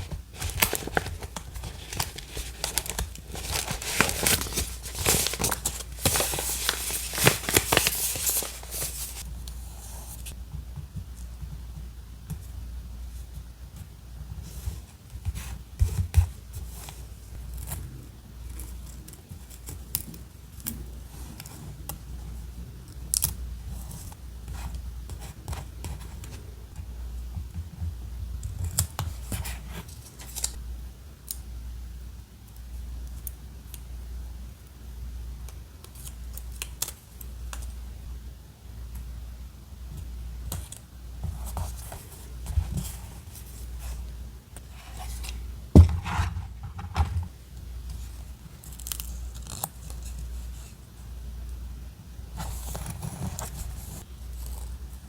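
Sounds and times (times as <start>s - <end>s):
paper rustling: 0.0s - 10.4s, 44.7s - 47.3s.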